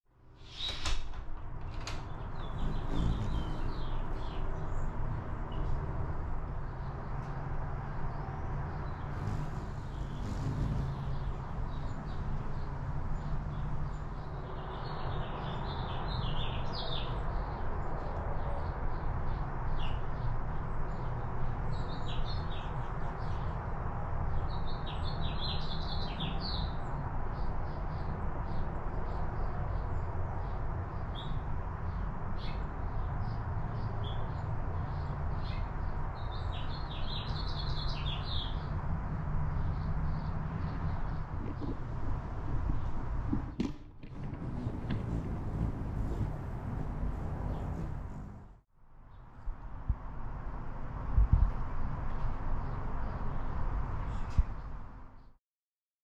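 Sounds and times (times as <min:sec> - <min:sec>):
small birds chirping: 0:02.0 - 0:05.8, 0:08.0 - 0:17.5, 0:31.0 - 0:38.8, 0:44.4 - 0:48.5
steady rushing noise: 0:44.2 - 0:48.6.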